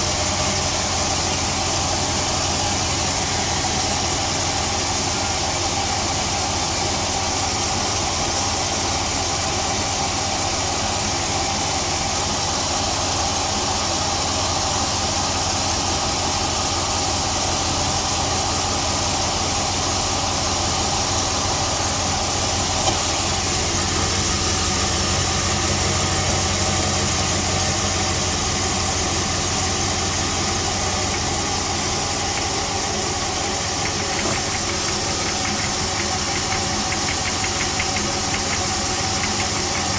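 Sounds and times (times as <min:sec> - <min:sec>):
engine idling with knocking clatter: 0:00.0 - 0:39.9.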